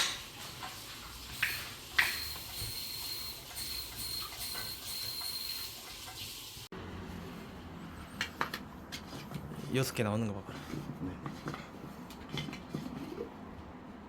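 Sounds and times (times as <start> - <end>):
gas hissing with high whistle: 1.3 - 6.6.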